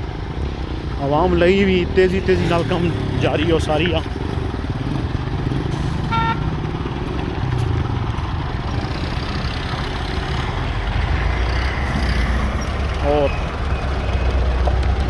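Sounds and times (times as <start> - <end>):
vehicle engine running: 0.0 - 15.0
short horn beep: 6.1 - 6.4.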